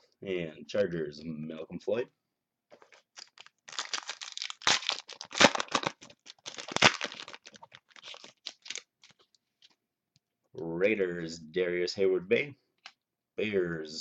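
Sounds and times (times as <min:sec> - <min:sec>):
cards and wrapper crinkling: 0:02.7 - 0:09.3.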